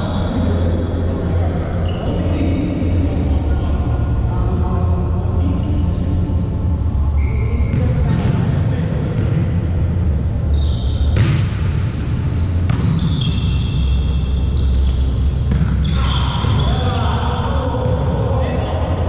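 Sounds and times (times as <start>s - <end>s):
low rumble of hall: 0.0s - 19.0s
sneakers squeaking on court: 12.3s - 13.9s, 14.5s - 17.0s.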